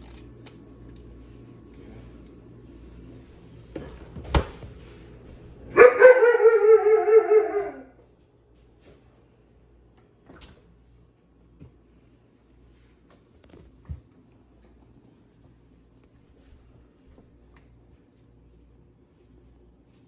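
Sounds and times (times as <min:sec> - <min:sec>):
dog whining: 0:05.7 - 0:07.9.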